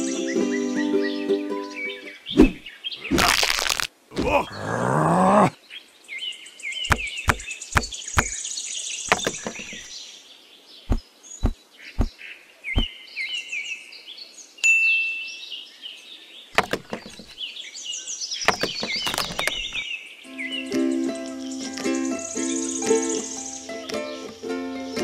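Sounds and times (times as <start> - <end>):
birds chirping and trilling: 0.0 - 14.6, 15.3 - 25.0
sharp knocks and clicks: 6.9 - 8.4, 9.1 - 9.9, 11.4 - 12.1, 16.6 - 17.4, 18.5 - 19.8.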